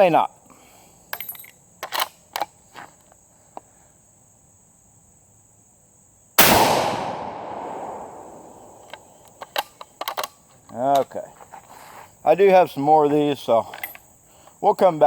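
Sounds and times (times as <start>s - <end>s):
rifle shot: 6.4s - 8.9s.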